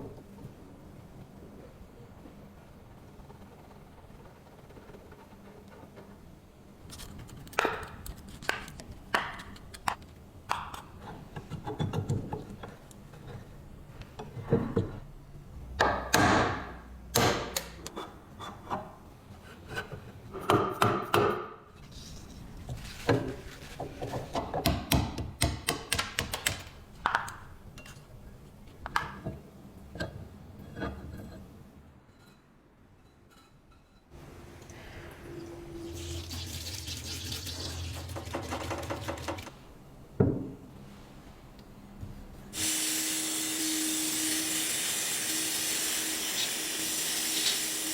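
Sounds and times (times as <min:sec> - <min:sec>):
scraping and rubbing on metal: 0:21.8 - 0:24.4.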